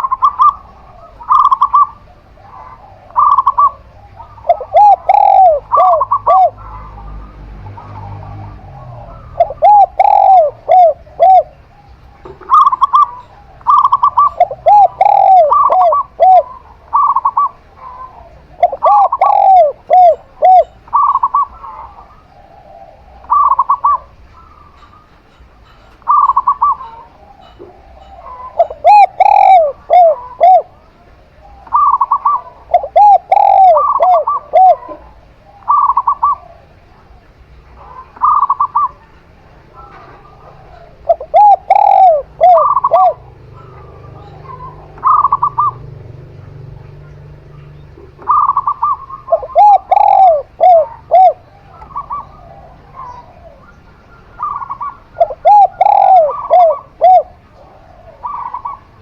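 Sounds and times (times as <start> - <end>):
doves cooing: 0.0 - 59.0.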